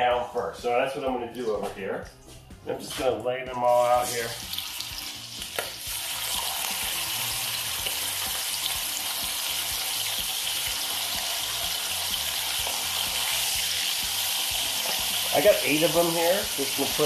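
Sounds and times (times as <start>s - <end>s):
chicken sizzling in hot oil: 3.7s - 17.0s.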